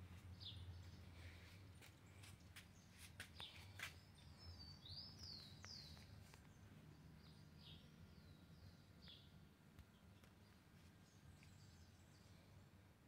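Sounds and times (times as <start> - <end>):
low steady background hum: 0.0 - 13.0
faint bird chirps: 0.3 - 12.7.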